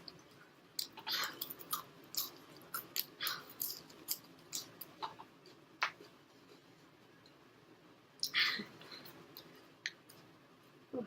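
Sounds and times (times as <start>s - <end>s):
person chewing with wet smacks: 0.8s - 6.0s.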